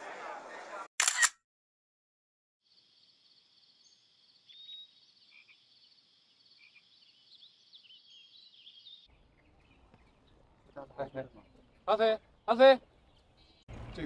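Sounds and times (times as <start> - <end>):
pulsing insect or frog chorus: 4.9 - 8.0.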